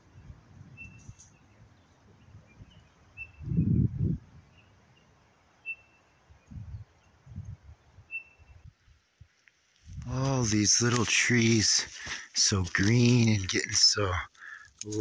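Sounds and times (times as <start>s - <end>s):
small bird chirping: 0.1s - 3.8s.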